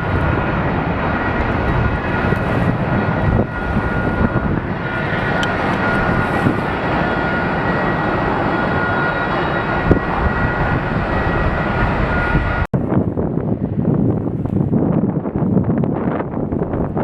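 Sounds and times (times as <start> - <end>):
high whining tones: 0.0 - 12.7
jet engines running: 0.0 - 17.0.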